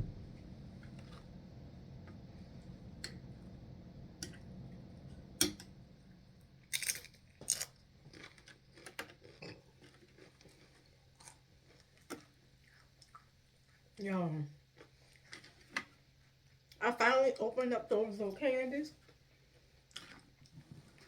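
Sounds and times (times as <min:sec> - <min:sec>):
nachos being bitten and chewed: 0:06.6 - 0:13.9, 0:14.7 - 0:16.8, 0:19.0 - 0:21.0
crisp crunches: 0:06.7 - 0:11.8.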